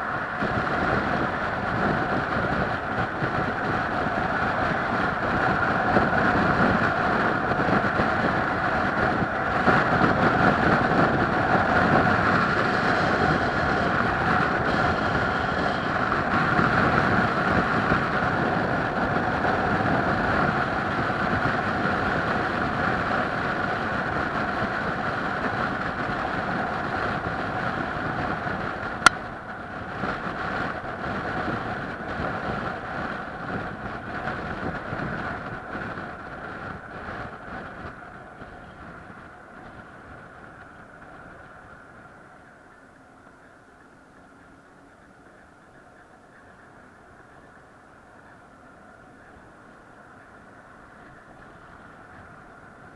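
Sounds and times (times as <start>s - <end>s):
vehicle running noise: 0.0s - 52.9s
wind noise: 0.0s - 52.9s.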